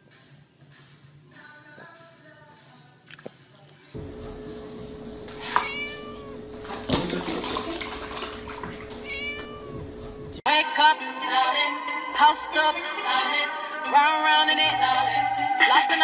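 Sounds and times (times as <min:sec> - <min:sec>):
music: 0:00.0 - 0:04.0, 0:10.1 - 0:16.0
kitten meowing: 0:05.0 - 0:06.6, 0:08.6 - 0:10.4
milk pouring into plastic tub: 0:05.0 - 0:10.0.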